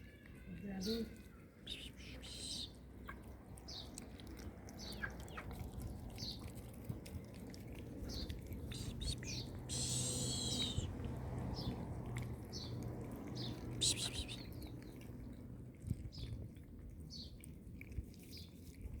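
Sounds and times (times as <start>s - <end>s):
birds chirping: 0.7s - 4.1s, 4.7s - 6.5s, 8.0s - 15.4s.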